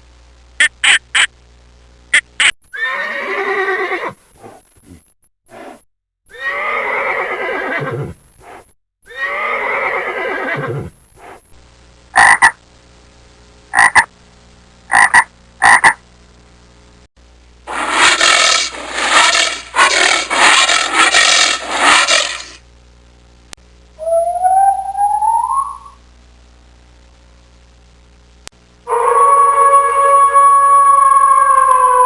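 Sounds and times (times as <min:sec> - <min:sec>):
frogs croaking: 0:00.6 - 0:01.3, 0:12.1 - 0:12.6, 0:13.7 - 0:14.1, 0:14.9 - 0:16.0
animal calls sliding down in pitch: 0:17.7 - 0:22.6, 0:28.9 - 0:32.0.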